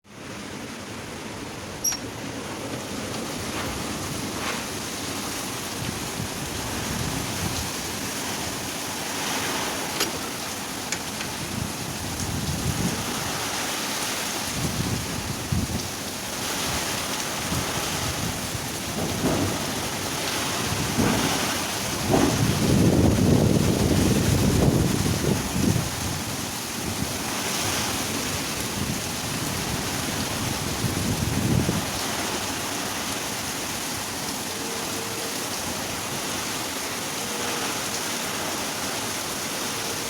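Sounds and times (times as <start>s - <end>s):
storm wind gusting: 1.0s - 34.1s
wind buffeting microphone: 2.4s - 34.2s.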